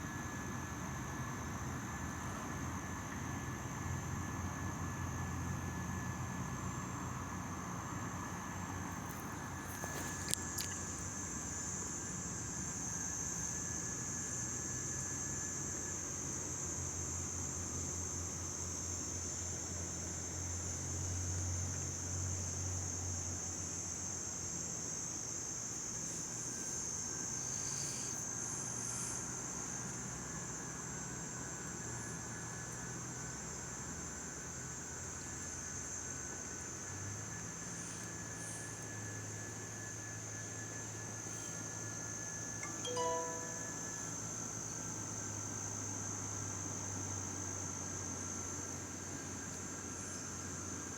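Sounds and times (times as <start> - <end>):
insects trilling: 8.5 - 17.0, 21.8 - 50.6.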